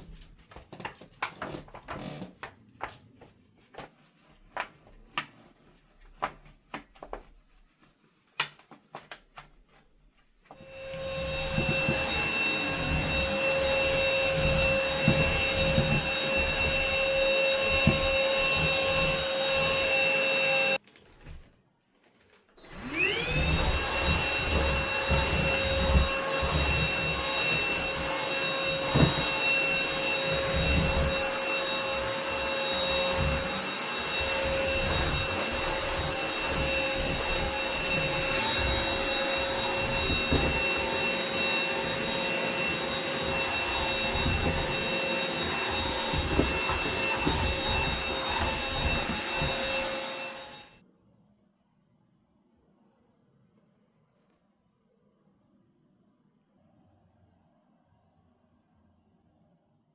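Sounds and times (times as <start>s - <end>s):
vacuum cleaner whining: 1.4s - 2.3s, 10.4s - 21.5s, 22.3s - 50.8s.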